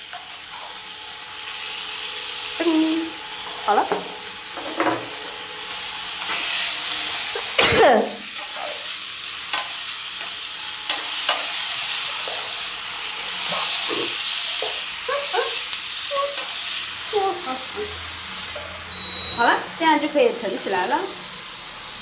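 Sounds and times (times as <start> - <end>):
stir-fry sizzling in a pan: 0.0 - 22.0.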